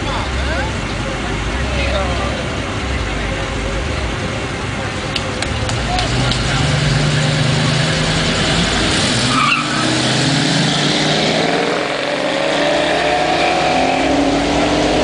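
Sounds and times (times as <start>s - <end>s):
car engines accelerating hard: 0.0s - 15.0s
tire squeal: 7.2s - 11.3s.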